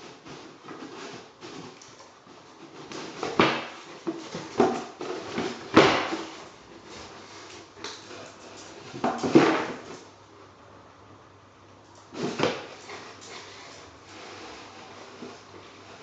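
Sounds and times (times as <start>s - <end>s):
cardboard box scraping: 12.2s - 16.0s.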